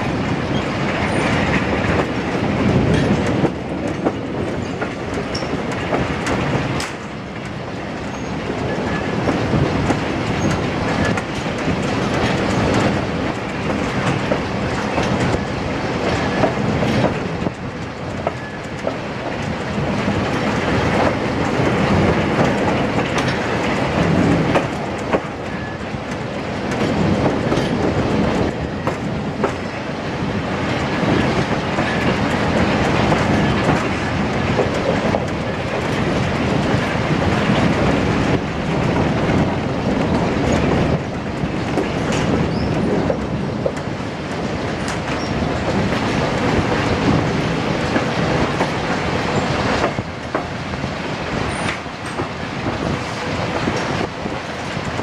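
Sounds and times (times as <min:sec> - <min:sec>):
train carriage rumbling and rattling: 0:00.0 - 0:55.0
wheels clicking over rail joints: 0:00.0 - 0:55.0.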